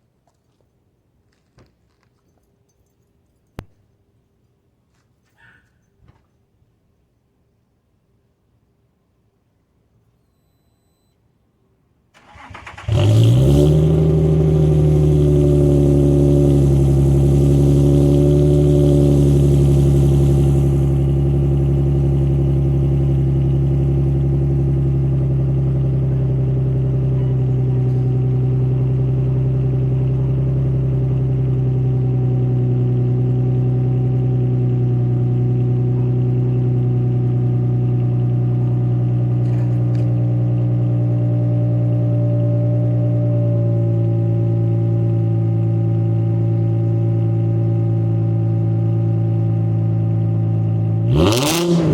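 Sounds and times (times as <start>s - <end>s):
loud engine idle: 15.7s - 40.5s.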